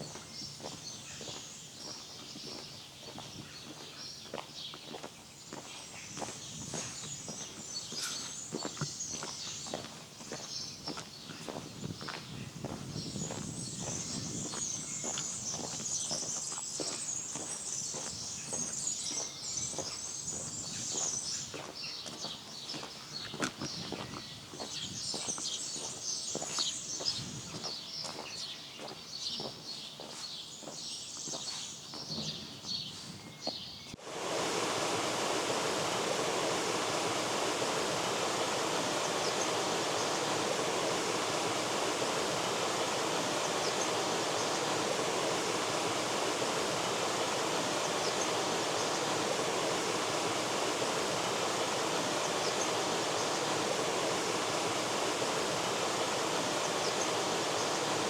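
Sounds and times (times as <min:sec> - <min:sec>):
small birds chirping: 0:00.0 - 0:58.0
river water rushing: 0:34.0 - 0:58.0.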